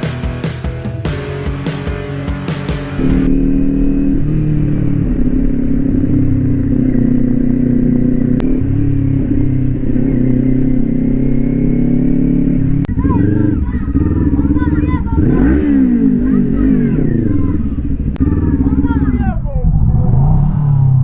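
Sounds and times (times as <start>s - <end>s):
background music: 0.0s - 8.3s
motorcycle engine running: 2.5s - 20.0s.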